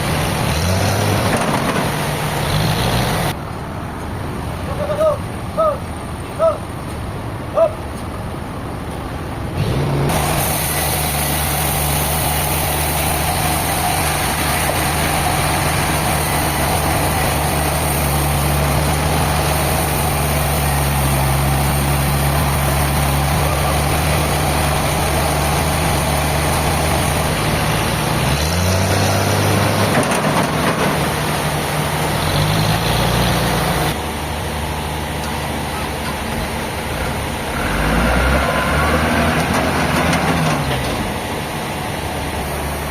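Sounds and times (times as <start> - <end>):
large engine running: 9.4 - 42.9.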